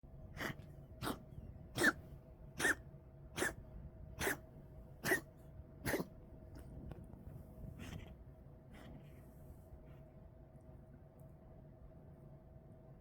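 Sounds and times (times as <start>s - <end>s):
cat coughing: 1.8s - 2.0s, 2.6s - 2.8s, 3.4s - 3.6s, 4.2s - 4.4s, 5.0s - 6.1s.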